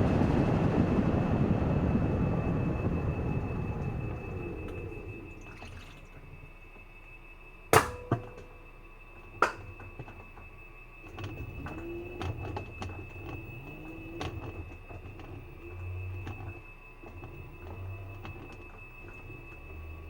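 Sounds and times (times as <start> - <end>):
washing machine spin cycle whine: 0.0 - 20.0
sharp knocks: 7.8 - 8.4
creaking glides: 11.2 - 20.0.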